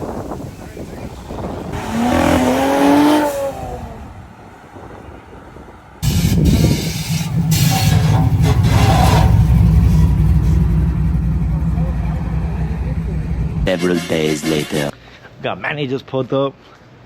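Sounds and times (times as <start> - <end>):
car engine revving: 0.9 - 4.0, 6.0 - 13.8
loud deep rumble: 6.0 - 13.8.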